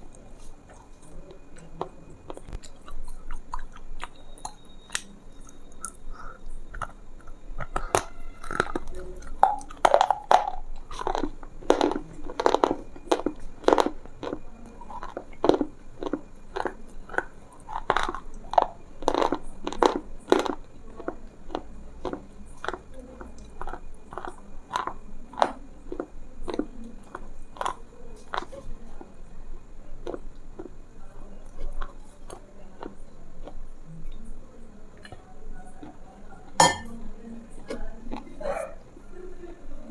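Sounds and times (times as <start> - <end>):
person chewing crisp food: 0.0 - 28.6, 30.0 - 30.8.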